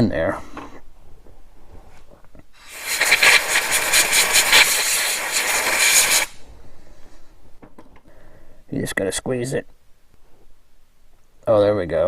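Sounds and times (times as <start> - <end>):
compressed air blasting: 2.6 - 6.5.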